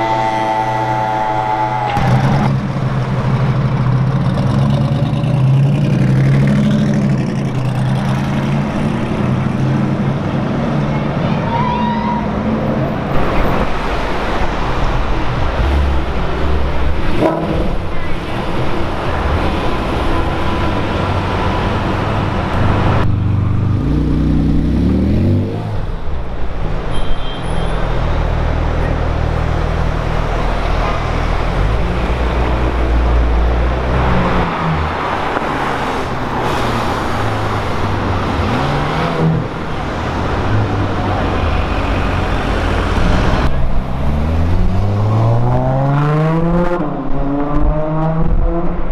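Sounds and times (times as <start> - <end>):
supercar engines in traffic: 0.0 - 48.9
engine revving: 30.5 - 48.9.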